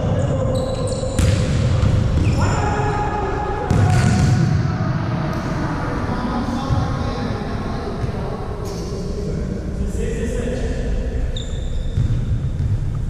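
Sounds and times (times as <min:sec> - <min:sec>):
steady background noise: 0:00.0 - 0:13.0
volleyball struck hard: 0:01.2 - 0:02.4, 0:03.7 - 0:04.6.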